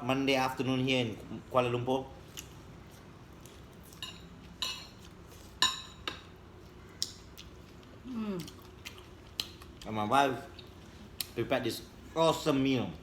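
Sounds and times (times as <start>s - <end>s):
cutlery clinking against dishes: 3.9s - 6.3s.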